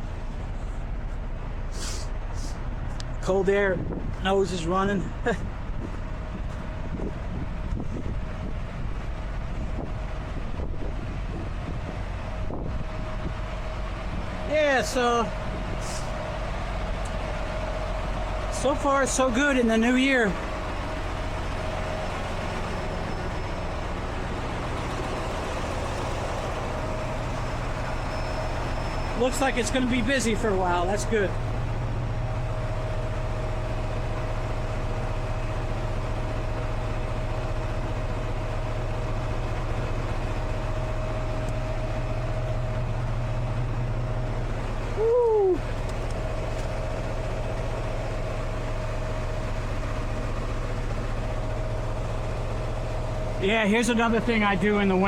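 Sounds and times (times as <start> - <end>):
truck diesel engine idling: 0.0 - 55.0.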